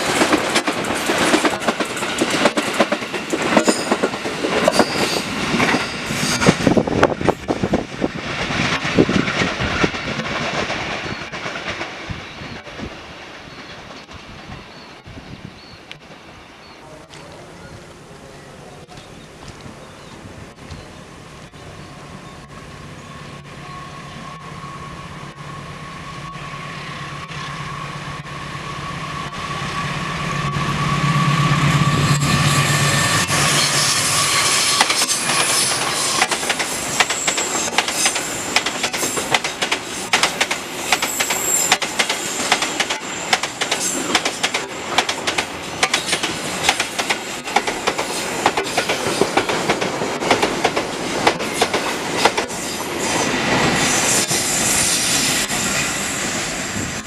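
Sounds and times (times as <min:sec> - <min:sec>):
clickety-clack of train wheels: 0:00.0 - 0:15.1, 0:32.1 - 0:57.0
diesel locomotive engine hum: 0:00.0 - 0:57.0
high wheel squeal: 0:04.6 - 0:06.8, 0:21.1 - 0:39.3, 0:40.8 - 0:44.1.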